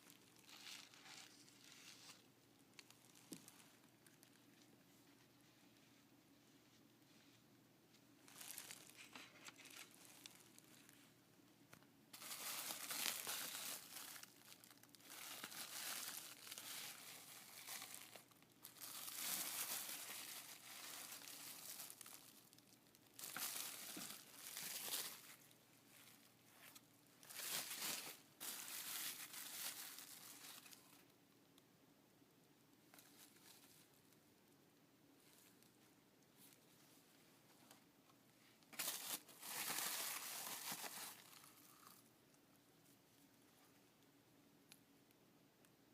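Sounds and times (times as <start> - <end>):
packaging crinkling: 0.0 - 4.5, 8.2 - 11.0, 12.1 - 26.2, 27.2 - 31.0, 38.7 - 42.0.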